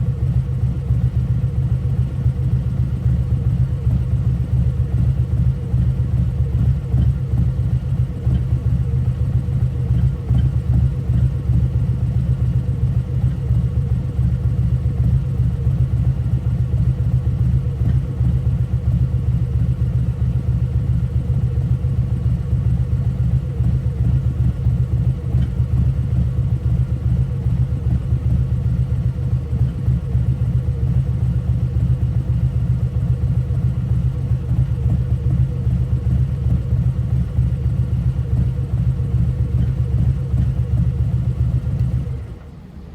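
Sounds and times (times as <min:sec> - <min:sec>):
motorcycle idling with exhaust rumble: 0:00.0 - 0:42.9.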